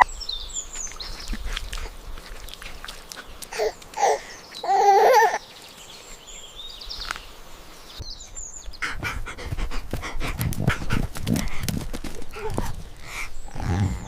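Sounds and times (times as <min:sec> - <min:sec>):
dog panting quickly: 0:08.8 - 0:13.4.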